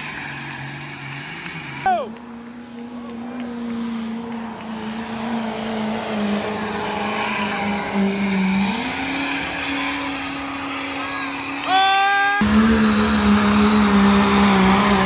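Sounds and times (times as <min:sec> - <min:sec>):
engine running at high revs: 0:00.0 - 0:15.0.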